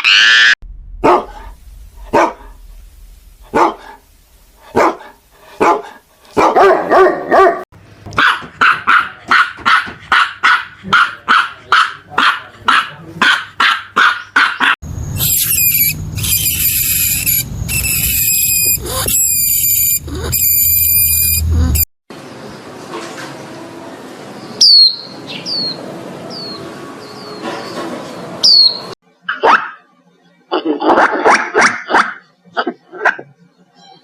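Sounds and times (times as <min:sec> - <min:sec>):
animal barking: 0:01.0 - 0:02.6, 0:03.5 - 0:07.6, 0:08.2 - 0:14.8, 0:30.5 - 0:33.3
high-pitched animal call: 0:15.2 - 0:21.9.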